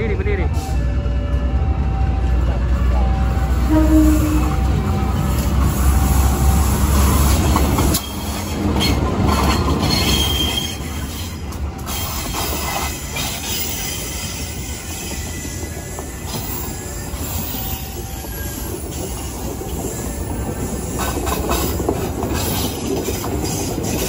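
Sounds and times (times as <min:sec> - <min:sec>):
clacks over rail joints: 0:07.0 - 0:14.3, 0:14.9 - 0:24.0
wheel squeal: 0:07.9 - 0:21.2.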